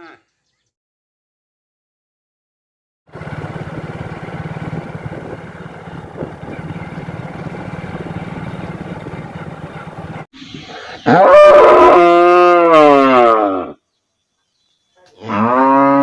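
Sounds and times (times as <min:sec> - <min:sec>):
engine idling: 0:03.1 - 0:10.3.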